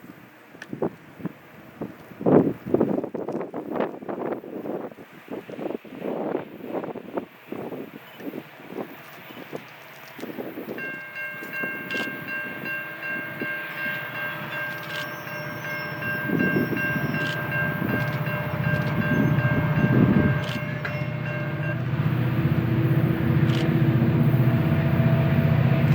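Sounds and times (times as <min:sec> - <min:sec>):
train low rumble: 0:00.0 - 0:25.9
train high-pitched tone: 0:09.0 - 0:25.9.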